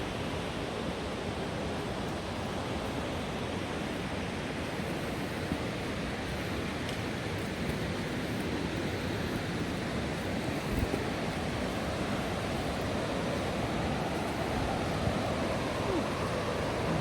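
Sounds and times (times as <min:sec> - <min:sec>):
river rapids rushing: 0:08.2 - 0:17.0.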